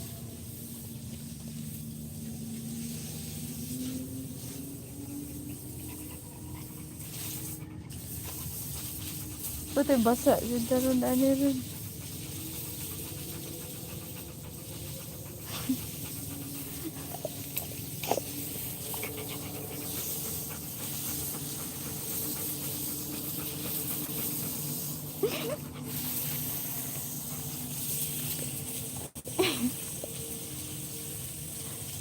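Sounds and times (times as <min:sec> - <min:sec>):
dog panting: 0:04.4 - 0:28.3.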